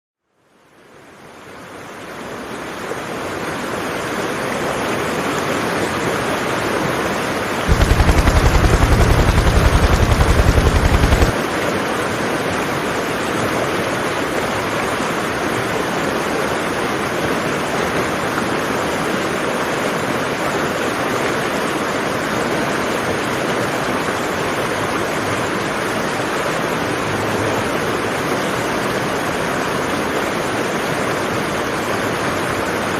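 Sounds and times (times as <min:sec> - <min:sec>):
rapid low pulsing: 0:07.7 - 0:11.4.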